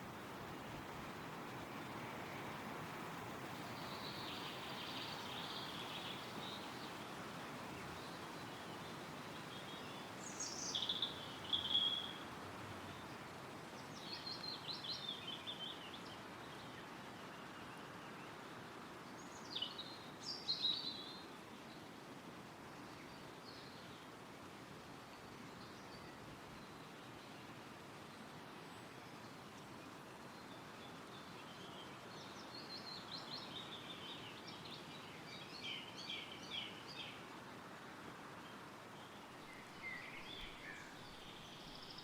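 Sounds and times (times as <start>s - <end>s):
songbird singing: 0.0s - 18.4s, 19.1s - 21.8s, 28.7s - 37.5s, 38.3s - 42.0s
wind rustling through trees: 0.0s - 42.0s.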